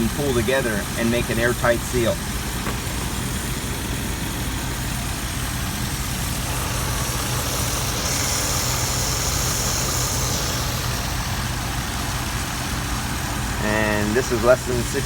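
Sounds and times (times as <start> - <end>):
low motor hum: 0.0 - 15.0
hiss: 6.2 - 12.0.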